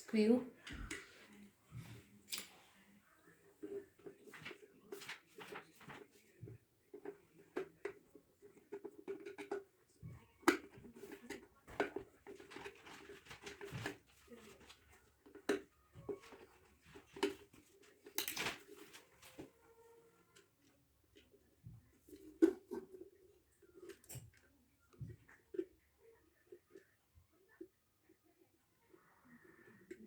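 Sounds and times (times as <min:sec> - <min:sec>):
kettle parts clicking and knocking: 0:07.0 - 0:09.8.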